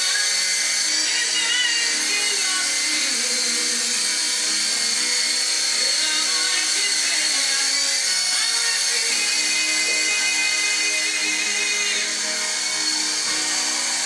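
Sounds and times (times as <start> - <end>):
toy helicopter whining: 0.0 - 14.0.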